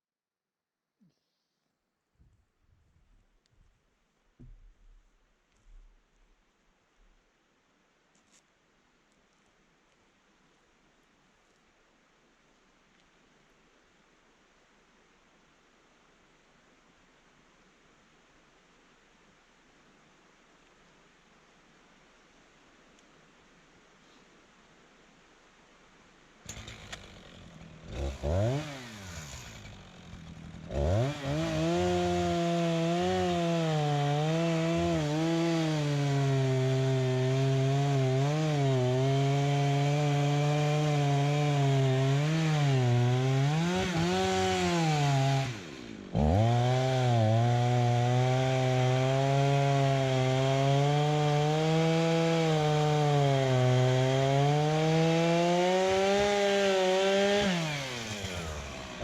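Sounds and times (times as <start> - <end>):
chainsaw engine revving: 26.5 - 59.0.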